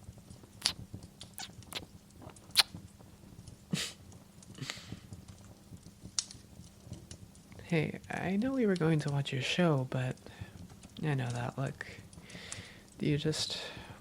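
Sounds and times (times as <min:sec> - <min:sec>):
wet lip smacks: 0:02.5 - 0:02.8.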